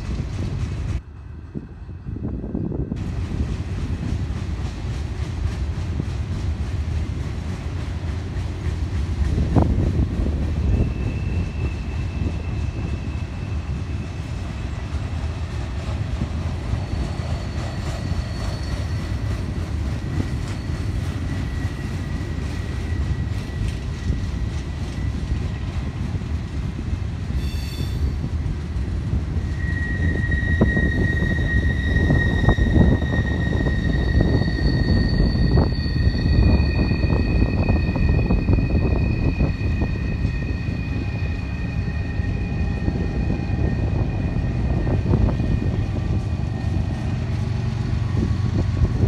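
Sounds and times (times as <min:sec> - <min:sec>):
train wheels rumbling on rail: 0:00.0 - 0:49.0
high wheel squeal: 0:10.3 - 0:14.9, 0:16.6 - 0:25.6, 0:27.4 - 0:28.4, 0:29.4 - 0:47.2.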